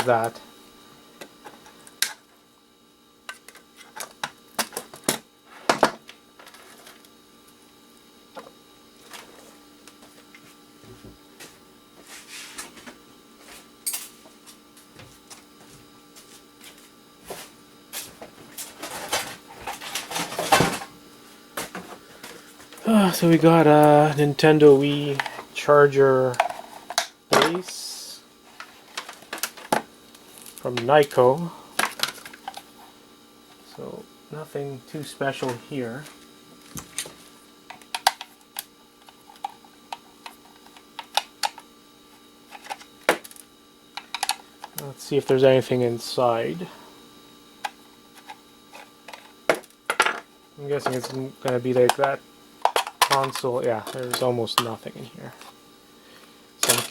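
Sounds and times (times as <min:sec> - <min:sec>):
electrical hum: 0:00.0 - 0:56.9
electronic parts clicking and clattering: 0:42.5 - 0:44.8, 0:47.6 - 0:54.7, 0:56.6 - 0:56.9.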